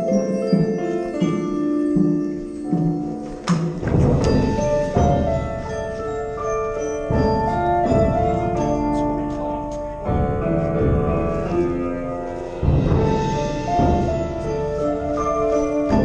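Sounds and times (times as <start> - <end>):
mallet keyboards ringing chords: 0.0 - 16.0
heavy drum hits: 3.6 - 6.4, 12.4 - 16.0.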